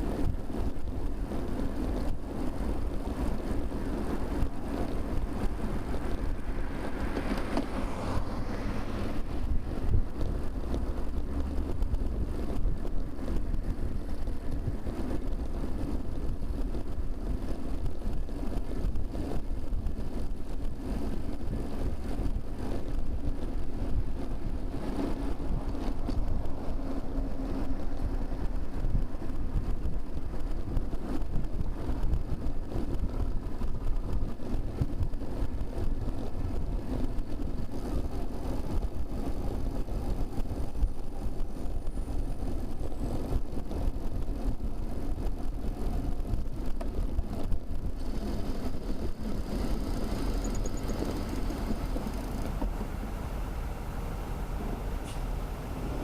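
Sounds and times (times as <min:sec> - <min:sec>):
wind rush on microphone: 0:00.0 - 0:56.0
motor traffic passing: 0:01.6 - 0:15.9, 0:44.8 - 0:56.0.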